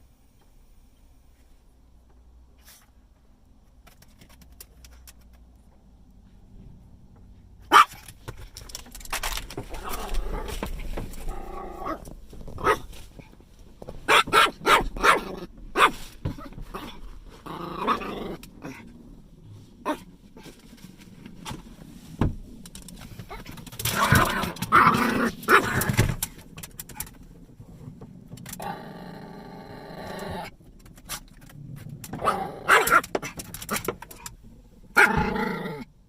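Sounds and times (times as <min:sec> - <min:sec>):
dog barking: 0:07.6 - 0:08.0, 0:12.6 - 0:12.9, 0:14.1 - 0:16.0, 0:24.7 - 0:25.8, 0:32.2 - 0:33.0
dog growling: 0:09.7 - 0:12.8, 0:16.7 - 0:18.9, 0:23.3 - 0:26.0, 0:28.5 - 0:30.5, 0:31.7 - 0:33.4, 0:35.0 - 0:35.9.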